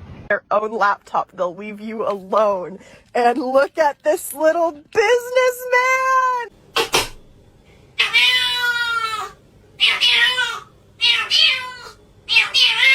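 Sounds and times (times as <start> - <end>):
cat meowing: 8.0 - 12.9.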